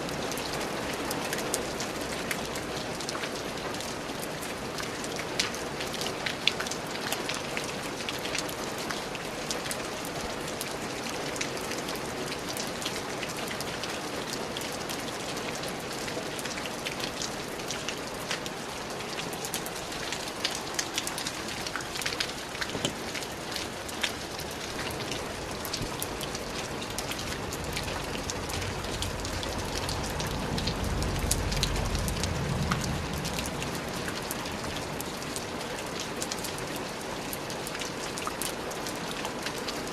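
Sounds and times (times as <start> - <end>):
rain drops ticking: 0.0 - 39.9
low rumble: 27.6 - 34.0.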